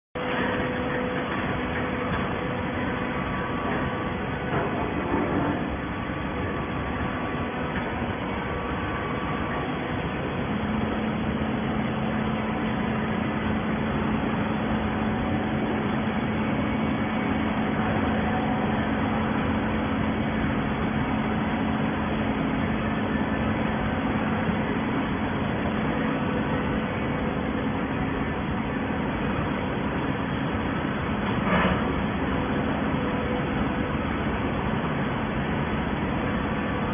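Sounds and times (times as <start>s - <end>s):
baling machinery running: 0.2s - 36.9s
steady hum: 0.2s - 36.9s.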